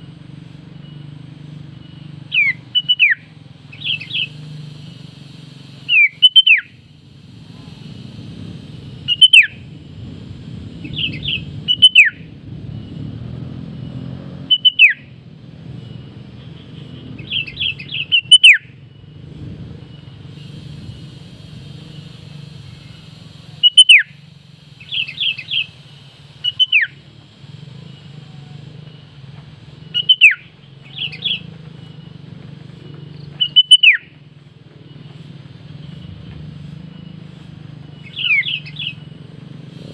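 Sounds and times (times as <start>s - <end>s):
steady low hum: 0.0s - 39.9s
bird calling with quick notes: 0.8s - 12.4s, 14.4s - 15.1s, 16.1s - 18.8s, 19.7s - 34.2s, 36.9s - 39.9s.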